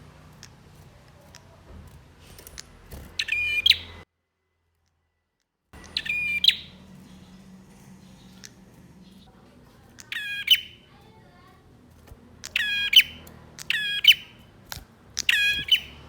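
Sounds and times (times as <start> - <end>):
bird stuttering song bursts: 2.2 - 4.0, 5.8 - 16.0
faint bird chirps: 2.2 - 4.0, 5.8 - 16.0.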